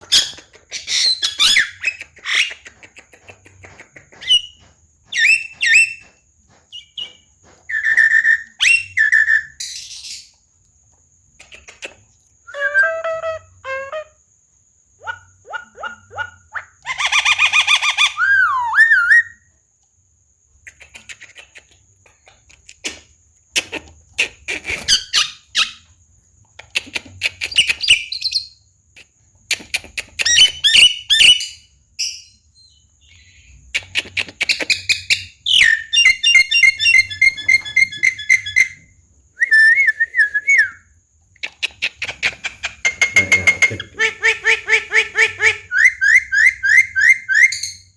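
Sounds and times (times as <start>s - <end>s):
myna bird singing: 0.0s - 10.3s, 34.5s - 38.9s, 42.9s - 47.9s.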